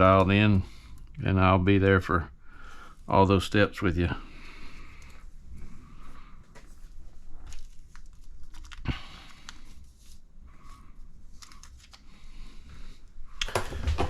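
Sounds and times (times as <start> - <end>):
plastic bag crinkling and tearing: 7.4 - 8.9
small crackles and clicks: 7.4 - 9.7.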